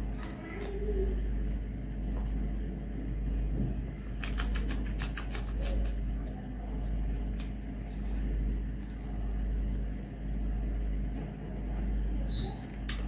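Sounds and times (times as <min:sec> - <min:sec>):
wet mouth clicks eating: 0:04.1 - 0:06.0, 0:12.7 - 0:13.0.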